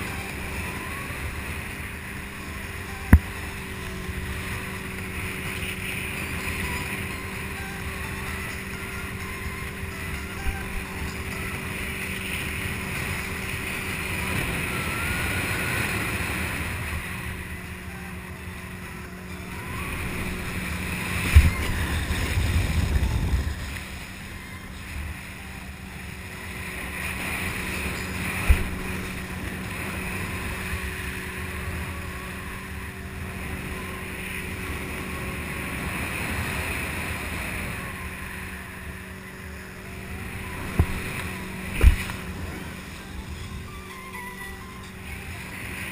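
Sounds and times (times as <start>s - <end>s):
motorboat engine running: 0.0s - 45.9s
rushing water: 0.0s - 45.9s
wind on microphone: 0.0s - 45.9s.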